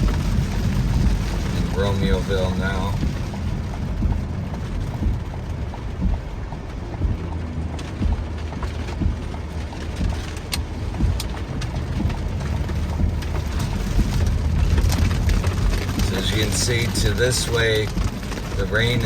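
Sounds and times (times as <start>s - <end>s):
rain tapping on truck: 0.0s - 19.0s
truck rumbling on wet road: 0.0s - 19.0s
low thump: 2.9s - 9.4s, 10.0s - 16.2s.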